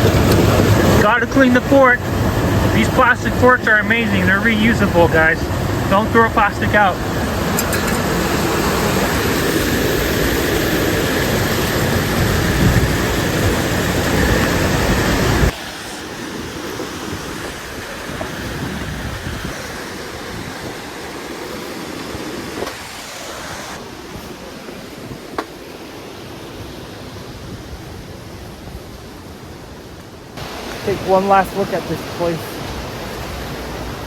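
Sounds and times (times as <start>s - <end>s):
waterfall rushing: 0.0s - 27.5s, 29.1s - 34.0s.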